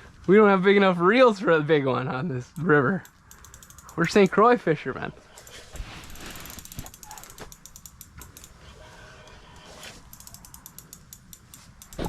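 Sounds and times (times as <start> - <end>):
fishing reel clicking: 2.6 - 4.5, 5.4 - 12.0.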